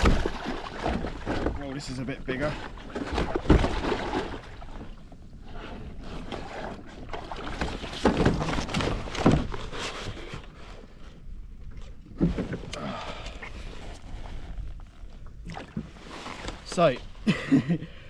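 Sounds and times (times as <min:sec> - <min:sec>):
water splashing: 0:00.0 - 0:05.0, 0:15.4 - 0:17.0.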